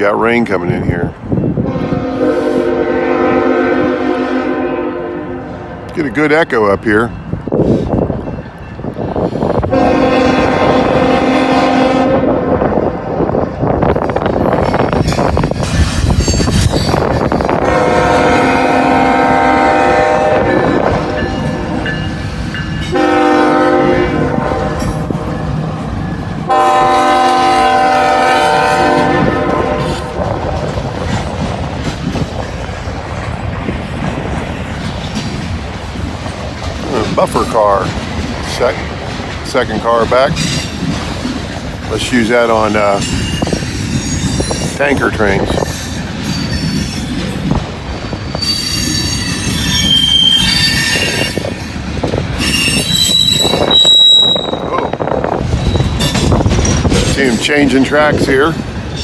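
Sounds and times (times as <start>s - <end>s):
locomotive air horn blast: 1.6s - 5.9s, 9.7s - 12.7s, 17.6s - 21.9s, 22.9s - 25.3s, 26.5s - 30.2s
freight cars rumbling and clattering: 12.8s - 19.7s, 24.1s - 59.0s
train wheels squealing on rails: 13.9s - 17.6s, 40.1s - 42.1s, 42.7s - 57.5s.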